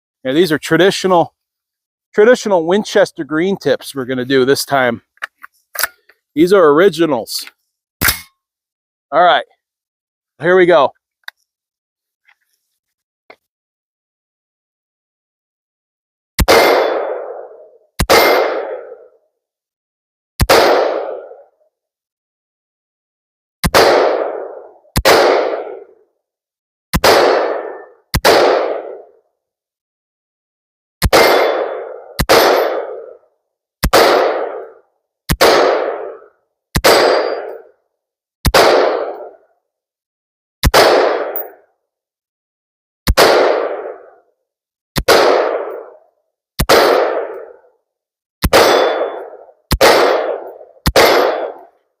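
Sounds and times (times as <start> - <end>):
rifle shots: 16.4 - 19.1, 20.4 - 21.5, 23.6 - 26.0, 27.0 - 29.1, 31.0 - 33.2, 33.8 - 37.7, 38.5 - 39.4, 40.6 - 41.6, 43.1 - 44.2, 45.0 - 46.0, 46.6 - 47.6, 48.4 - 51.8.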